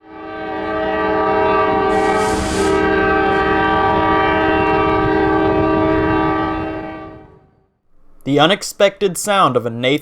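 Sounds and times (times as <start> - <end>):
locomotive air horn chord: 0.0 - 8.2
brief hiss: 1.9 - 3.0.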